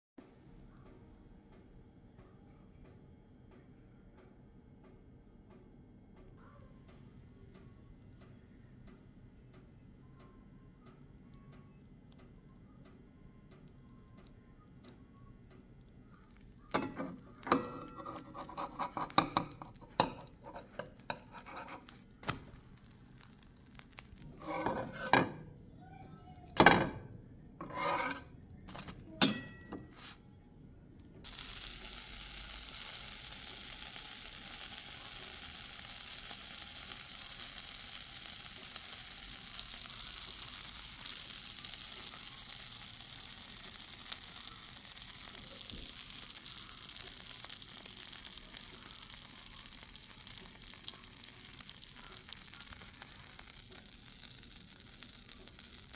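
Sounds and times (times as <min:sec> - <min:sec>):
batter stirred in a bowl: 0:15.6 - 0:25.2
pancakes sizzling in a pan: 0:16.2 - 0:25.5, 0:26.6 - 0:30.2, 0:31.2 - 0:55.9
utensil clinking on dish: 0:16.7 - 0:21.9, 0:27.6 - 0:30.1.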